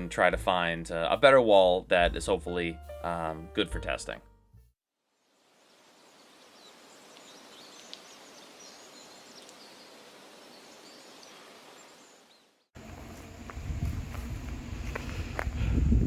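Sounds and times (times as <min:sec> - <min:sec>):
background hiss: 0:05.2 - 0:16.0
small birds chirping: 0:05.6 - 0:15.6.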